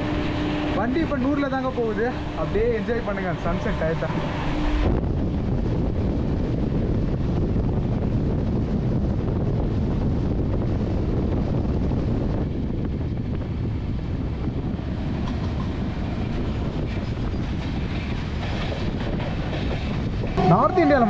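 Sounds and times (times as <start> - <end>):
train rumbling: 0.0 - 21.0
wind on microphone: 4.2 - 21.0.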